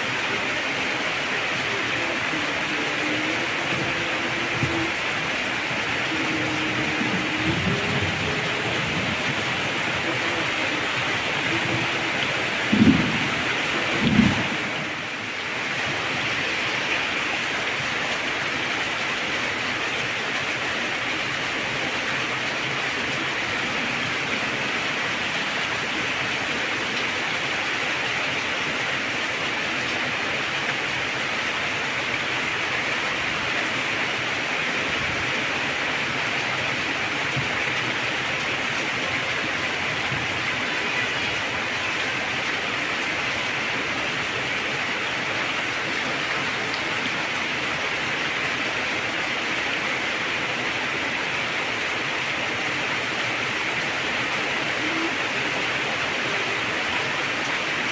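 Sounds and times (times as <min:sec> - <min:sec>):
heavy rain falling: 0:00.0 - 0:57.9
low rumble of thunder: 0:05.7 - 0:14.9.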